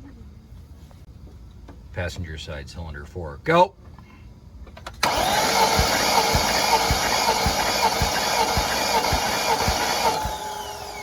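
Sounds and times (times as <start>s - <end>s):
engine cranking on starter motor: 4.8s - 11.0s.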